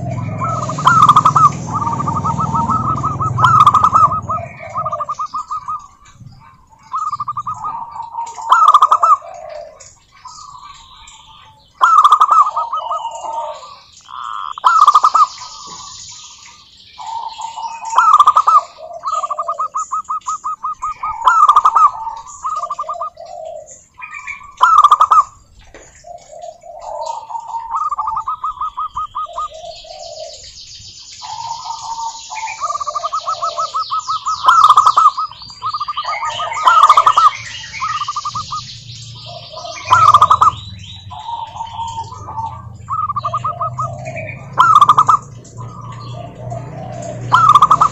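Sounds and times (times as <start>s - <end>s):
dove coos: 0.0s - 15.9s, 17.0s - 47.9s
doves trilling: 0.0s - 47.9s.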